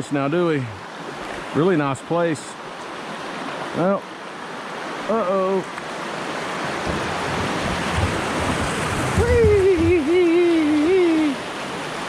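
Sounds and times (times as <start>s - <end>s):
rushing river water: 0.0s - 12.0s
man exclaiming: 9.1s - 11.4s.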